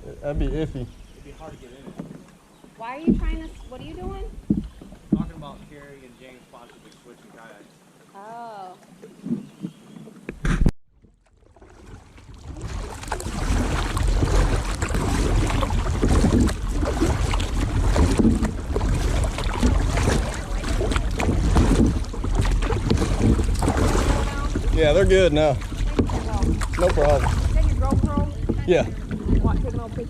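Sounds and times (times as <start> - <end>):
kayak paddles in water: 0.0 - 30.0
wind buffeting microphone: 2.8 - 6.0, 12.2 - 30.0.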